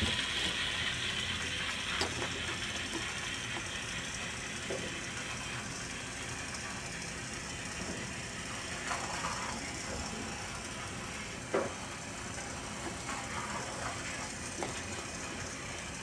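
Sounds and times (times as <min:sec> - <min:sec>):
toy train motor and gears: 0:00.0 - 0:16.0.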